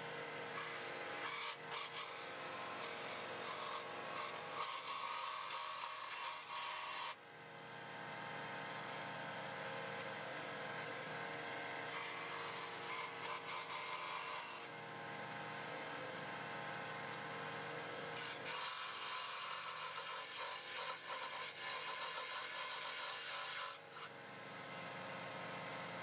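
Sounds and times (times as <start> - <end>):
electric power tool whirring: 0.0 - 7.2, 11.4 - 14.8, 17.0 - 25.7.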